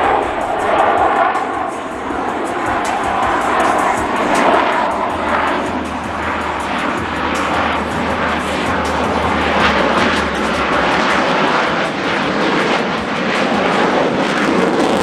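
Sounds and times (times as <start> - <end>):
loud jet noise: 0.0 - 15.0
low rumble: 4.9 - 11.8.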